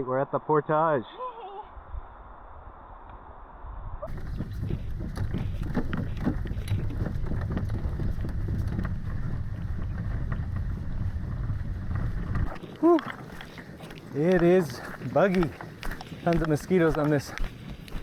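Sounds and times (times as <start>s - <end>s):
wind rumble: 1.7s - 18.0s
footsteps crunching on trail: 4.1s - 18.0s
microphone handling noise: 4.1s - 18.0s.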